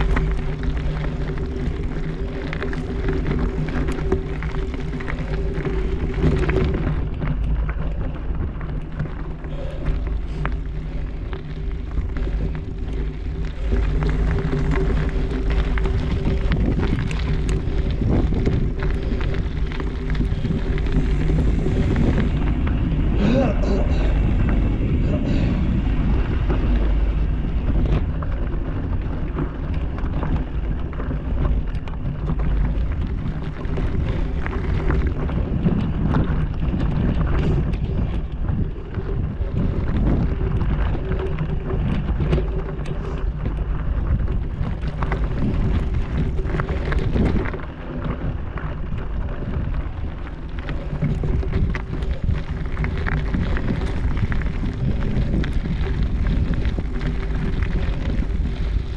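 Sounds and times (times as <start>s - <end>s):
wind buffeting microphone: 0.0s - 58.9s.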